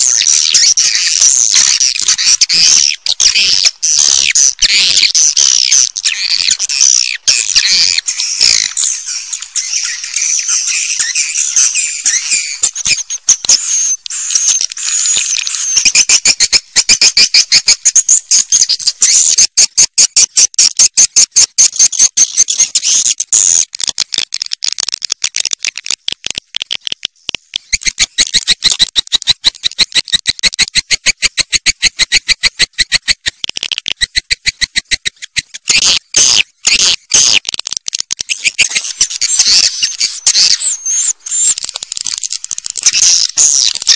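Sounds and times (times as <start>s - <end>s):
swiftlet twittering chirps: 0.0s - 19.4s, 38.3s - 43.9s
fast runs of clicks: 23.6s - 43.9s.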